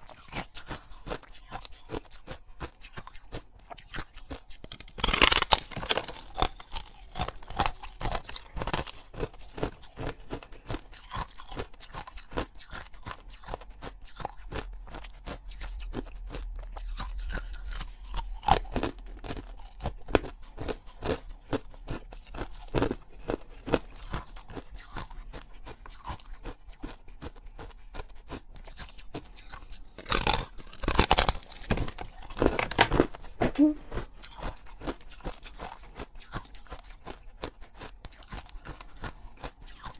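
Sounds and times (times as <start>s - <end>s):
person crunching and chewing: 0.0s - 39.9s.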